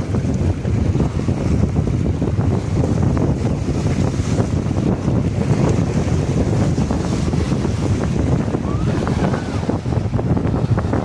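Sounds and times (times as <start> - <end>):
waves splashing: 0.0 - 11.0
wind buffeting microphone: 0.0 - 11.0.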